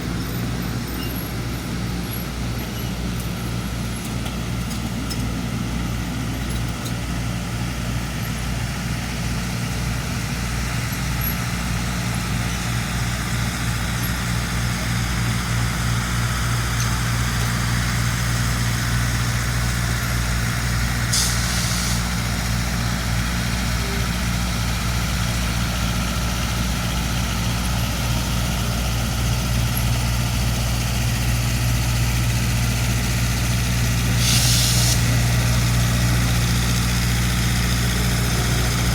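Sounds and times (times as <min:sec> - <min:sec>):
diesel locomotive engine idling: 0:00.0 - 0:38.9
short hiss: 0:21.1 - 0:22.1, 0:34.2 - 0:35.2.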